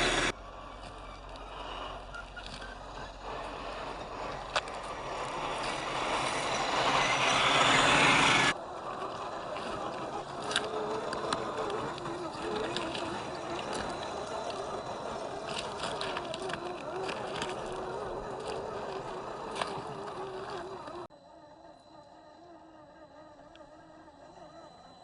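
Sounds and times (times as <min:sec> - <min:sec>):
tyres crunching on dirt: 0:00.0 - 0:21.1
electric motor whine: 0:00.0 - 0:25.0.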